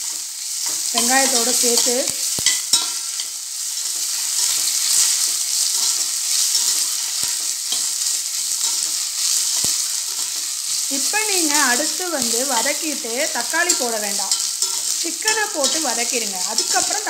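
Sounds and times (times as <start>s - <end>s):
onions sizzling in hot oil: 0.0s - 17.0s
metal spatula scraping pot: 13.6s - 17.0s.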